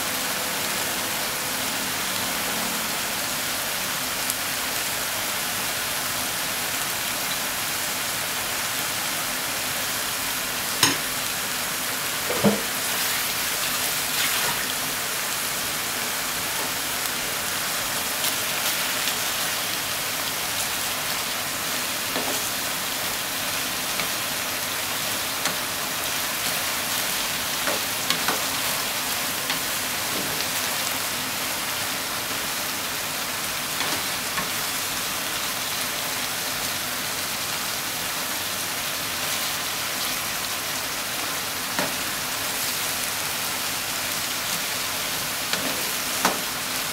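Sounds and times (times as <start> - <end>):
food sizzling in a frying pan: 0.0 - 46.9
spatula knocking and scraping pan: 12.3 - 12.9.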